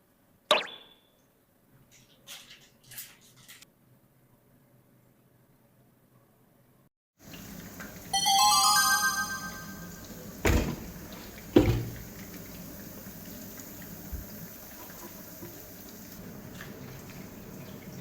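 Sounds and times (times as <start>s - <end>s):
bright rising chime: 8.2s - 10.2s.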